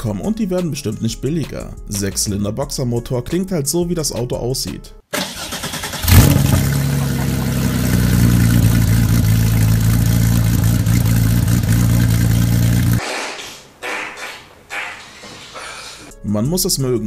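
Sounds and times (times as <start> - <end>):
car engine starting and idling: 5.2 - 13.0.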